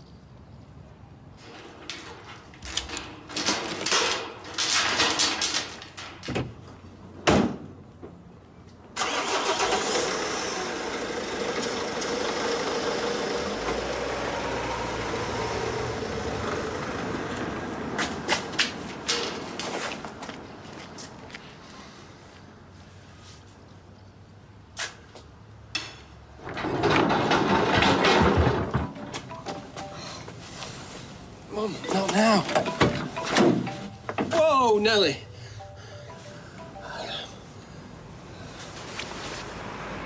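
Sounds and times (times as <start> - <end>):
objects clattering: 26.4 - 30.3.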